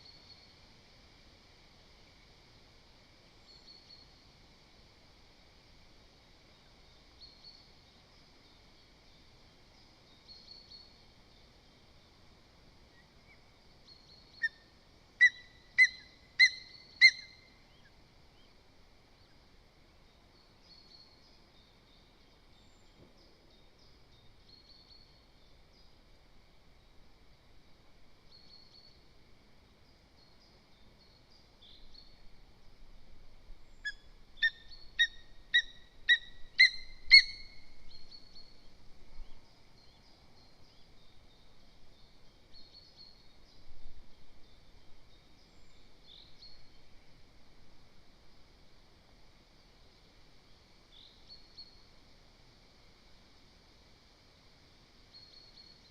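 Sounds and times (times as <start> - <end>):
faint small bird chirps: 0.0 - 0.6, 3.4 - 4.3, 6.5 - 12.2, 12.8 - 19.4, 20.0 - 26.0, 28.2 - 29.1, 29.9 - 32.4, 33.5 - 47.0, 50.9 - 52.0, 55.1 - 55.9
eagle yelping calls: 15.2 - 17.4, 33.9 - 37.5.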